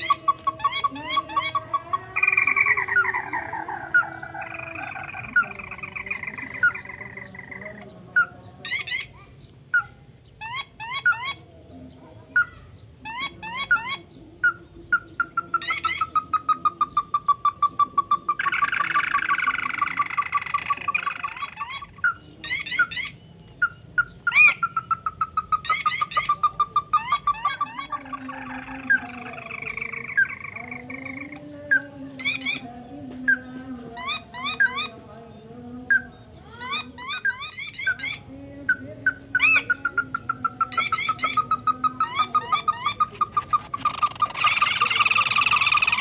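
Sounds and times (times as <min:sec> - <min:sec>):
falling bird call: 0:00.0 - 0:11.4, 0:35.9 - 0:46.0
fast high bird chirps: 0:00.0 - 0:11.4, 0:12.4 - 0:34.9, 0:35.9 - 0:46.0.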